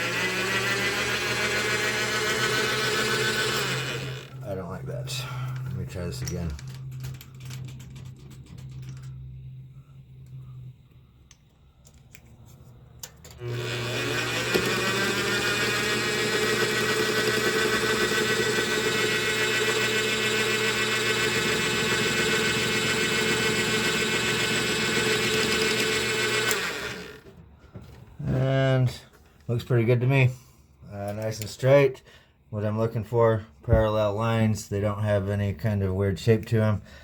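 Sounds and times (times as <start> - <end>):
electric motor whining: 0.0 - 4.4, 13.4 - 27.3.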